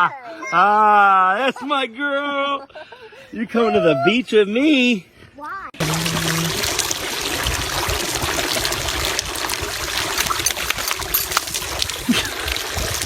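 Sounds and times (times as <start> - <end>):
running water splashing: 5.8 - 13.0.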